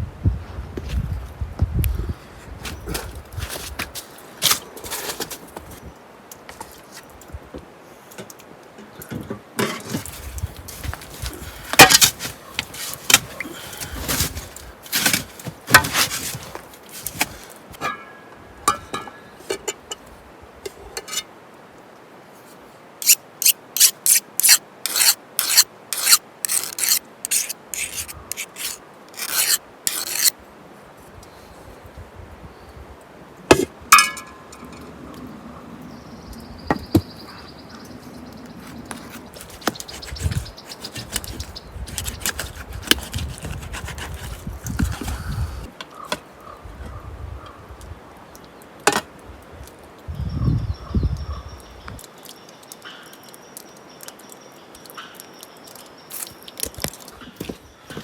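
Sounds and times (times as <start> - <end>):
short scraping strokes: 23.0 - 30.3, 38.7 - 45.3.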